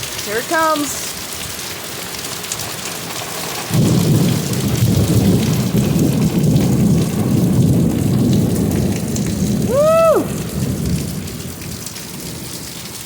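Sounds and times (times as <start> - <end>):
torrential rain hissing: 0.0 - 13.0
thunder rumbling: 3.0 - 13.0.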